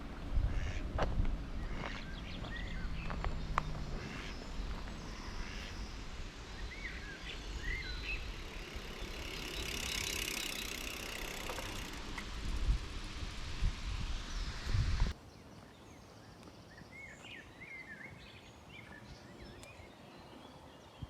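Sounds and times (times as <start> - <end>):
low wind rumble: 0.0 - 15.2
bird chirps: 1.6 - 11.7.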